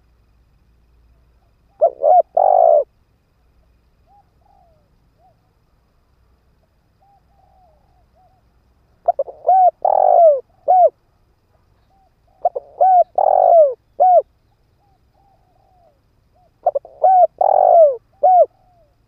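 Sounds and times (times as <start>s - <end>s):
dove cooing: 1.7s - 2.9s, 4.0s - 5.5s, 7.0s - 8.4s, 9.0s - 11.0s, 11.8s - 19.0s.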